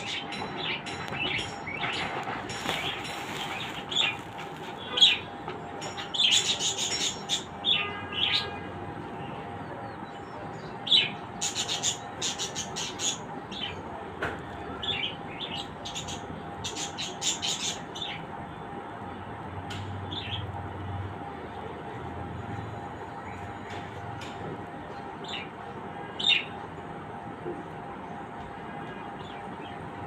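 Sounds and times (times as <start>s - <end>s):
birds chirping: 0.0s - 18.4s.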